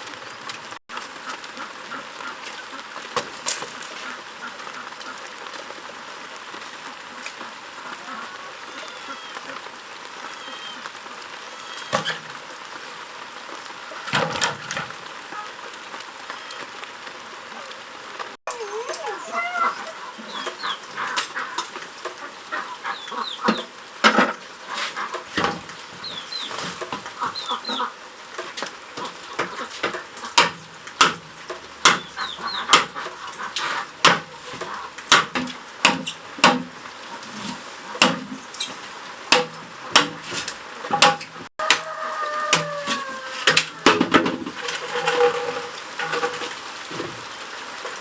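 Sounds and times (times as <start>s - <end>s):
chickens clucking: 1.0s - 5.5s, 6.6s - 12.4s, 18.5s - 38.8s, 39.6s - 47.1s
sharp knocks: 31.8s - 32.1s, 35.1s - 36.7s.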